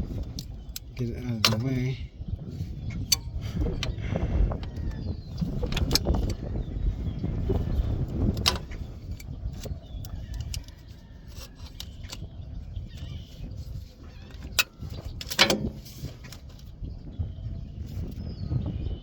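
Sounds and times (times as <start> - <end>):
metal tools clicking and clinking: 14.4 - 16.0.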